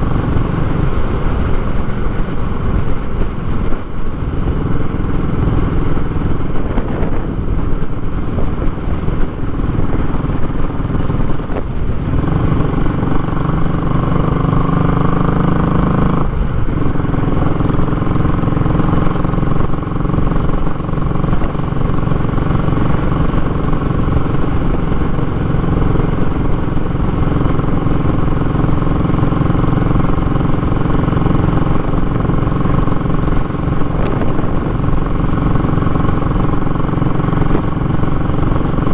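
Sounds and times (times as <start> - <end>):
single-cylinder motorcycle engine: 0.0 - 38.9.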